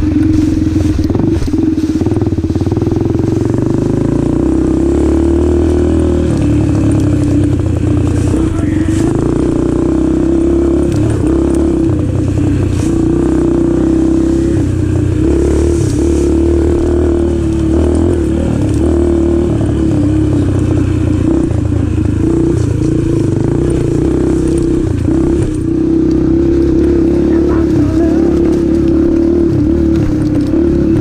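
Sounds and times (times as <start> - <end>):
dirt bike engine revving: 0.0 - 31.0
sharp clicks and clatter: 5.6 - 13.7, 15.1 - 31.0.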